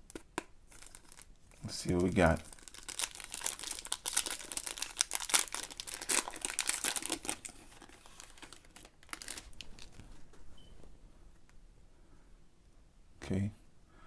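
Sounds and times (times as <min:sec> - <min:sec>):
foil wrapper tearing and crinkling: 0:00.0 - 0:10.0.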